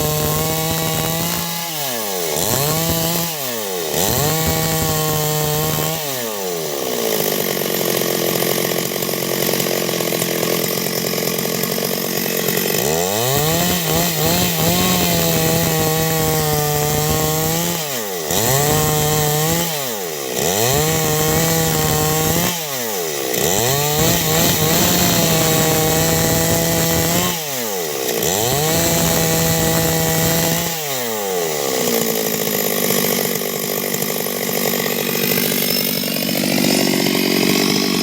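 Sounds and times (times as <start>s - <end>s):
chainsaw cutting wood: 0.0s - 38.0s.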